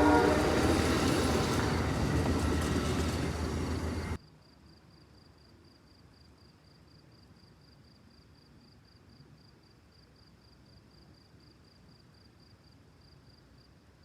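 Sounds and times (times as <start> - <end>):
train passing loudly: 0.0 - 4.2.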